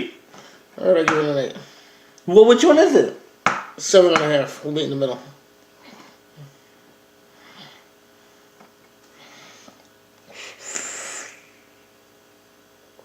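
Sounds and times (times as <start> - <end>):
hissing vape exhale: 9.3 - 11.6.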